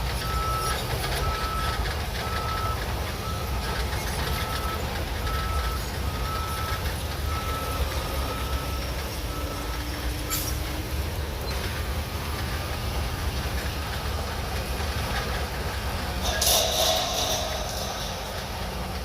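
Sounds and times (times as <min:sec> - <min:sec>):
bulldozer diesel engine: 0:00.0 - 0:19.0
reversing alarm beeping: 0:00.2 - 0:10.5.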